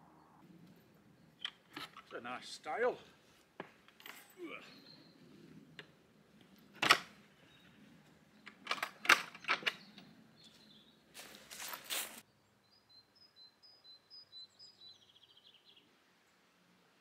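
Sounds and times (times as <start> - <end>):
songbird singing: 0.0 - 17.0
rustle: 0.4 - 12.5
sharp clicks and knocks: 8.4 - 10.1.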